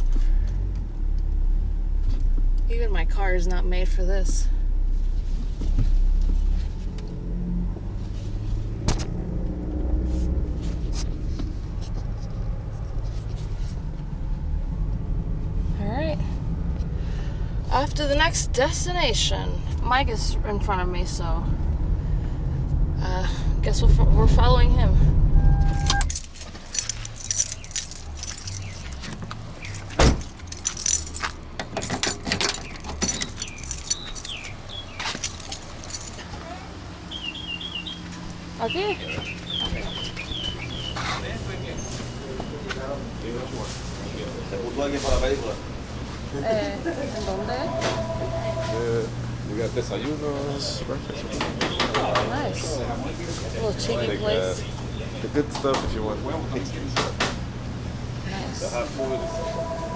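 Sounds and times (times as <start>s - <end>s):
car rumbling on rough road: 0.0s - 59.9s
keys jangling: 25.7s - 36.3s
loose things rattling: 25.8s - 36.3s.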